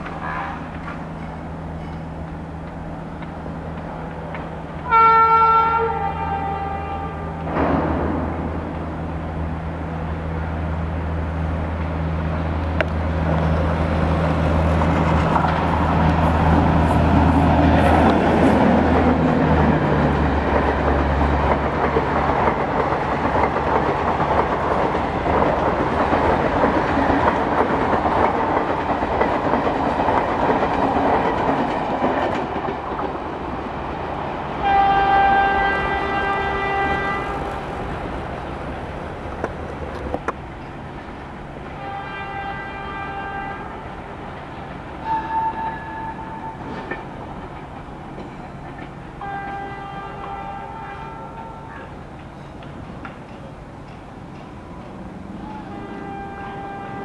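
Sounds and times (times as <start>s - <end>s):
train wheels rattling over rail joints: 0.0s - 4.9s, 5.5s - 10.0s, 11.7s - 43.4s, 44.0s - 57.0s
train horn: 4.8s - 7.6s, 34.6s - 37.6s, 41.7s - 44.1s, 45.0s - 46.9s, 49.2s - 52.0s, 55.4s - 57.0s.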